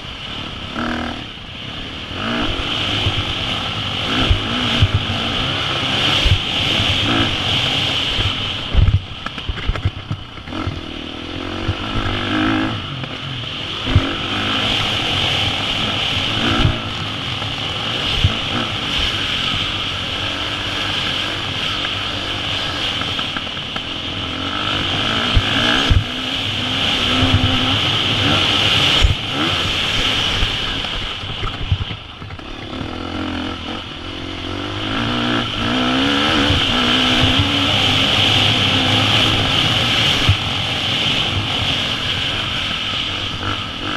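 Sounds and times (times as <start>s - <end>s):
motocross bike engine revving: 0.0s - 43.9s.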